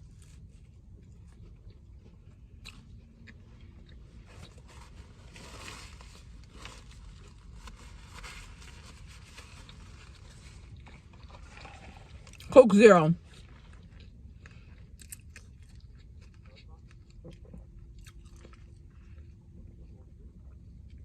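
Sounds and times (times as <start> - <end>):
person chewing food: 0.1 - 4.7, 9.6 - 12.5, 13.3 - 21.0.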